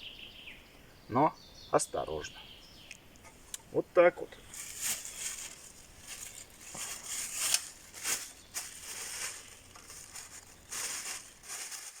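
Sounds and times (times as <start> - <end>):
rustling and crunching: 4.4 - 12.0.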